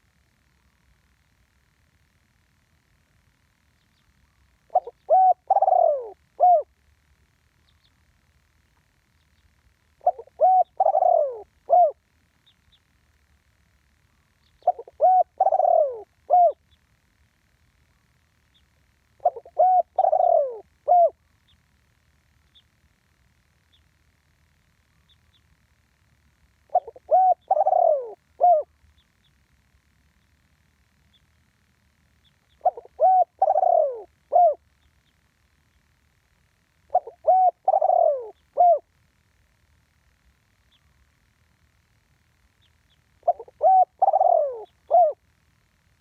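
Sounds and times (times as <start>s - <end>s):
dove cooing: 4.6s - 6.8s, 9.9s - 12.1s, 14.5s - 16.8s, 19.2s - 21.2s, 26.7s - 28.8s, 32.5s - 34.7s, 36.9s - 39.0s, 43.2s - 45.2s.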